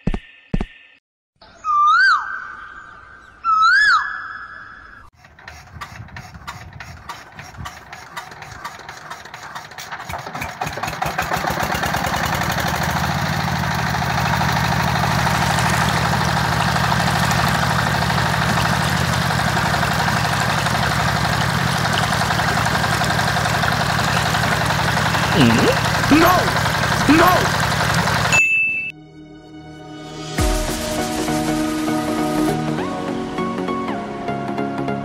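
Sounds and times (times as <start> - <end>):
diesel engine chugging: 5.2 - 28.4.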